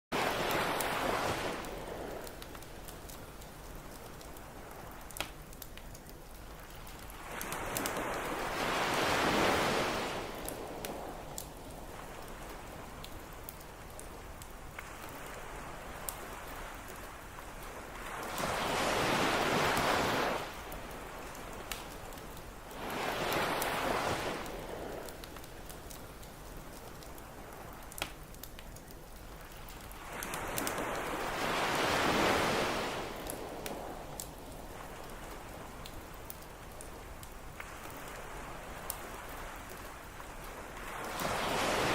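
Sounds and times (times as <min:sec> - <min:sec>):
campfire popping and crackling: 0:00.1 - 0:41.9
ocean wave breaking: 0:00.2 - 0:02.4, 0:07.2 - 0:11.2, 0:14.8 - 0:25.5, 0:30.0 - 0:35.7, 0:40.6 - 0:41.9.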